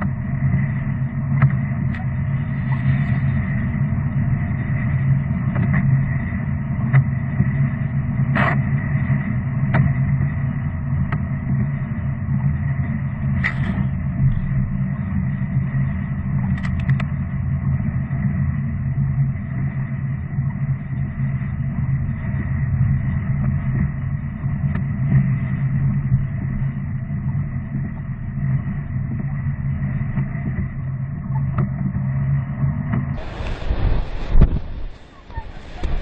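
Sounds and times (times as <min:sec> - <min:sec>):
faint high whine: 0:00.0 - 0:36.0
low engine drone: 0:00.0 - 0:36.0.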